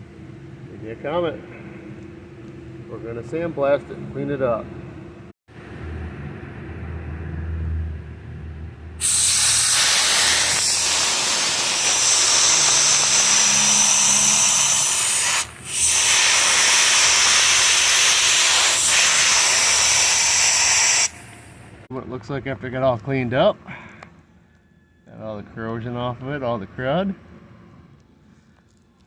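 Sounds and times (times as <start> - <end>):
low hum: 0.0 - 9.0
sandblaster hissing: 9.0 - 21.7.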